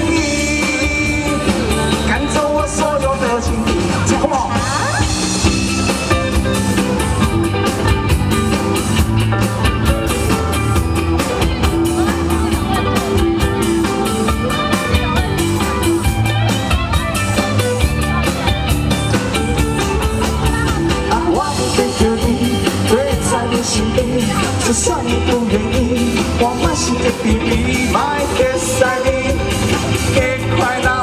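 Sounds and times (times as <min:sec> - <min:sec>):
live band playing instrumental: 0:00.0 - 0:31.0
steady drum beat: 0:00.0 - 0:31.0.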